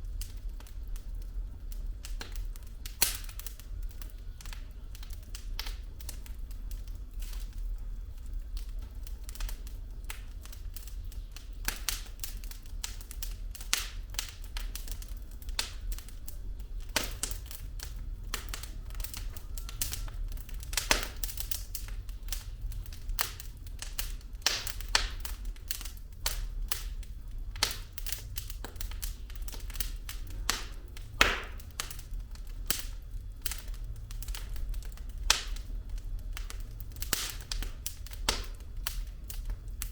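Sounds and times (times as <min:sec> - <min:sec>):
logs crackling and popping: 0:00.0 - 0:39.9
low rumble of flames: 0:00.0 - 0:39.9.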